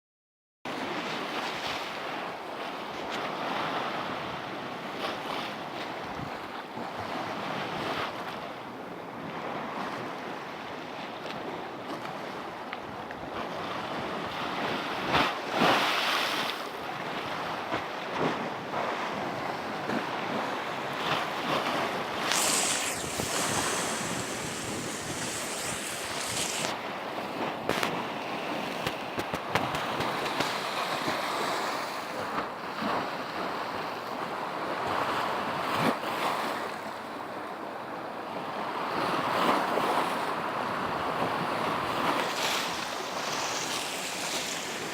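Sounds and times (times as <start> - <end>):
waves washing onto shore: 0.7 - 44.9
wind on microphone: 2.0 - 36.7, 38.9 - 44.9
hiss of water: 21.8 - 26.8, 42.0 - 44.9.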